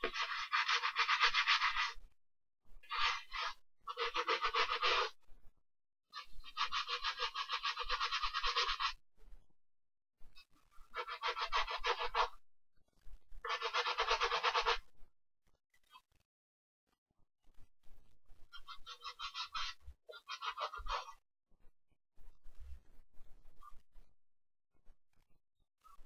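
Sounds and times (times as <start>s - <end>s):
brush scrubbing a sneaker: 0.0s - 2.0s.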